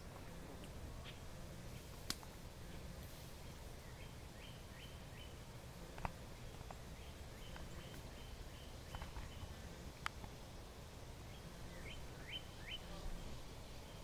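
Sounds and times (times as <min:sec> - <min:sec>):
low outdoor rumble: 0:00.0 - 0:14.0
bird chirping: 0:03.5 - 0:05.5, 0:06.3 - 0:09.7, 0:11.2 - 0:14.0.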